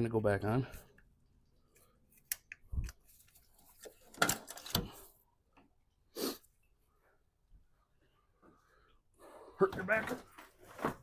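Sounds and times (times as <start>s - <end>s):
knocks and clicks of parts handled: 3.8s - 5.7s.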